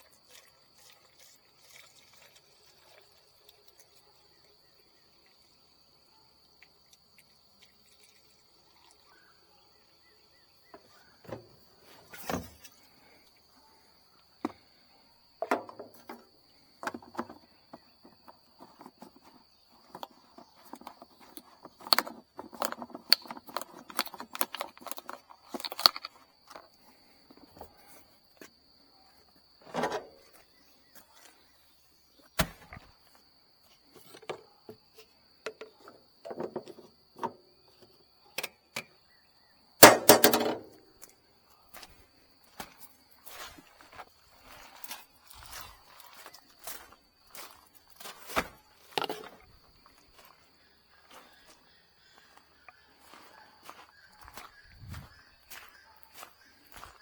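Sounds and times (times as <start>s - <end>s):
insects chirring: 0.0s - 57.0s
knocks and clattering: 39.8s - 40.8s
thumps: 39.8s - 40.8s.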